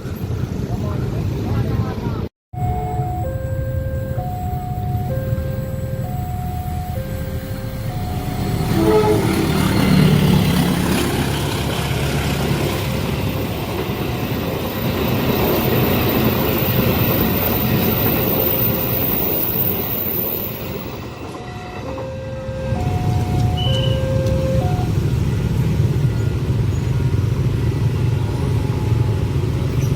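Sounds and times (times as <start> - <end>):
two-tone crossing alarm: 2.6 - 10.6, 16.7 - 25.1
train carriages rumbling and clattering: 7.6 - 29.9
train horn: 8.2 - 10.3.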